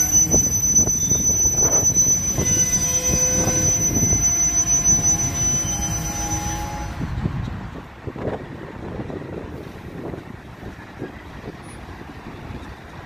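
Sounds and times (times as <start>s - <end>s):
high wheel squeal: 0.0s - 7.4s
freight train cars rolling: 0.0s - 7.8s.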